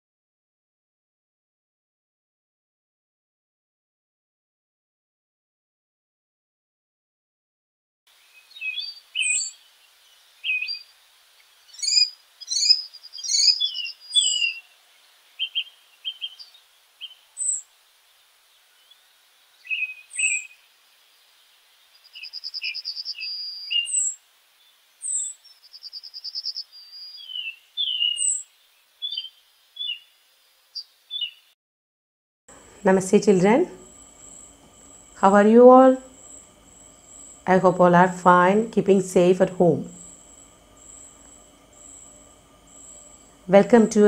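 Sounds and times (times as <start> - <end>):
bird fast trills: 8.3 - 9.7, 11.6 - 14.8, 15.4 - 17.6, 19.6 - 20.6, 21.9 - 24.2, 25.0 - 31.5, 36.1 - 38.2
songbirds chirping and whistling: 8.3 - 31.5, 33.8 - 38.2, 39.9 - 44.0.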